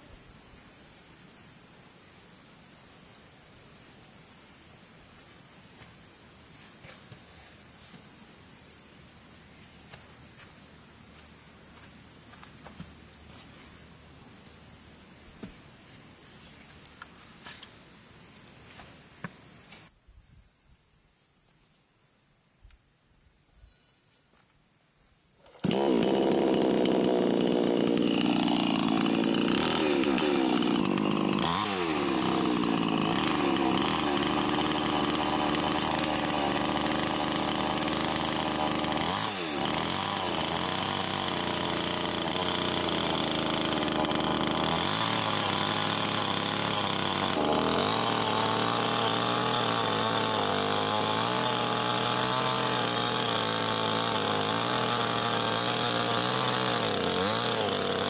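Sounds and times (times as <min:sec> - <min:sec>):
small motor running: 0:25.5 - 0:58.0.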